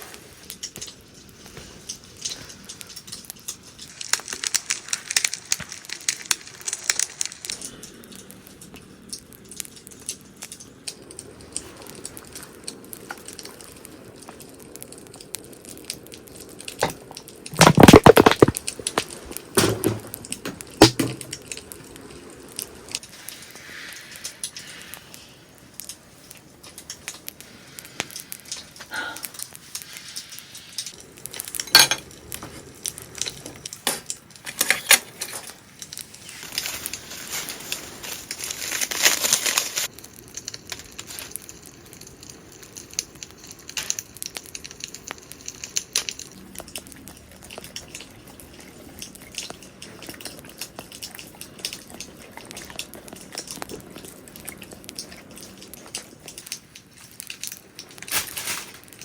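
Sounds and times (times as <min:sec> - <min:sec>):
crinkling: 0:00.0 - 0:59.0
hiss: 0:22.7 - 0:26.7, 0:27.3 - 0:31.6
cookware and utensils clinking: 0:30.8 - 0:35.6.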